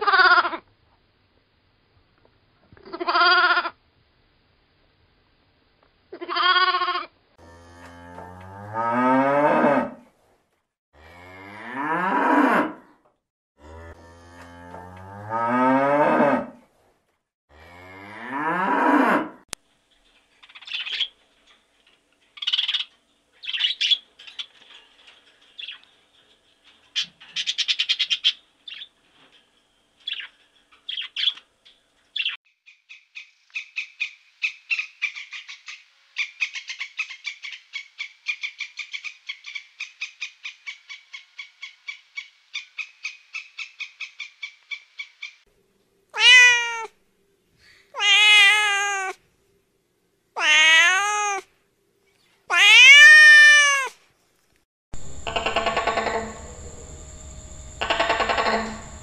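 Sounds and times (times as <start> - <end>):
macaw squawking: 46.2 - 46.9, 48.0 - 49.2, 50.4 - 51.4, 52.5 - 53.9, 55.2 - 56.4, 57.8 - 59.0
cat meowing: 46.2 - 47.0, 48.0 - 49.2, 50.4 - 51.5, 52.5 - 54.0
squirrel chattering: 55.2 - 56.3, 57.8 - 58.8.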